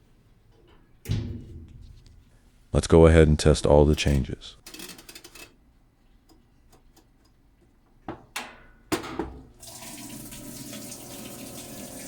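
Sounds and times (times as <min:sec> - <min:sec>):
water rushing into tub: 0:09.6 - 0:12.0.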